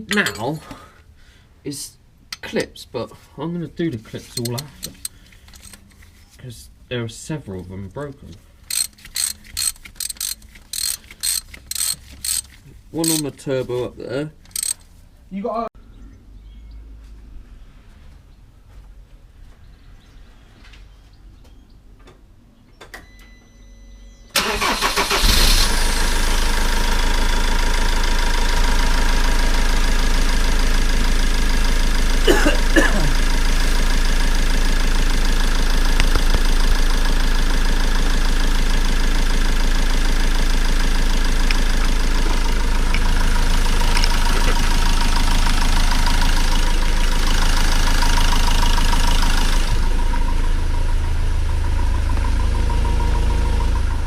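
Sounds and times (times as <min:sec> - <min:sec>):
van engine starting and idling: 0:24.3 - 0:54.0.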